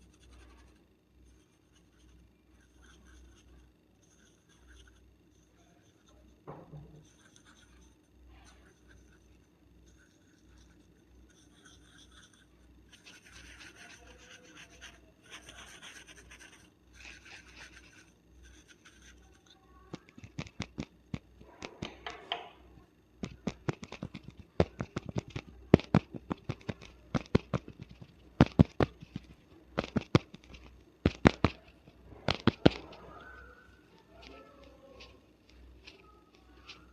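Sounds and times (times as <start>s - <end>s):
fingernails scratching hair: 9.9s - 19.3s
sharp irregular clicks: 19.9s - 22.5s, 23.2s - 31.7s, 32.3s - 32.9s.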